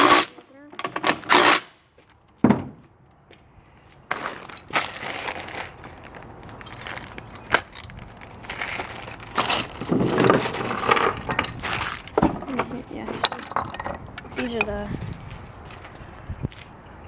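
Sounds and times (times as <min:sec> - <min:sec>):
metal parts clattering and clinking: 0:04.1 - 0:14.9.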